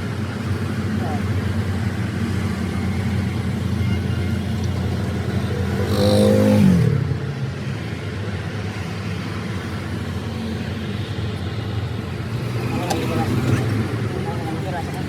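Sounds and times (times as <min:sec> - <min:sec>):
engine revving and idling: 0:04.8 - 0:07.3.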